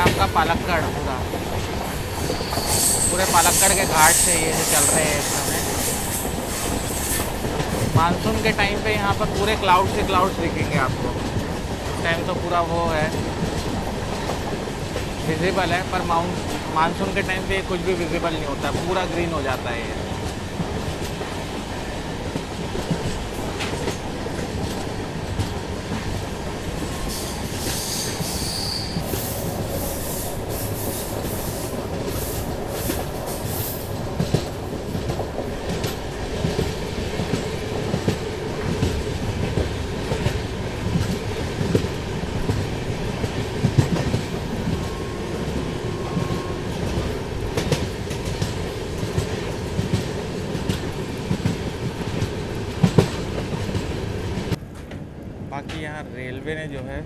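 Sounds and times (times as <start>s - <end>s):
train rumbling on track: 0.0s - 57.0s
wheels squealing and hissing: 2.2s - 7.3s, 27.0s - 32.4s.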